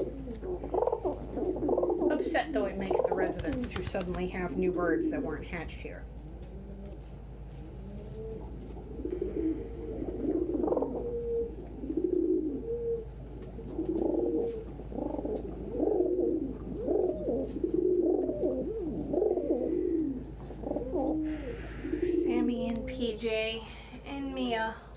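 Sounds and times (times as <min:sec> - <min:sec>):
pigeons cooing: 0:00.0 - 0:24.7.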